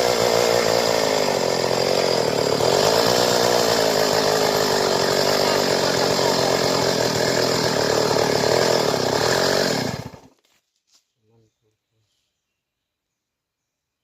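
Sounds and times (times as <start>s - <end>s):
chainsaw running: 0.0s - 10.4s.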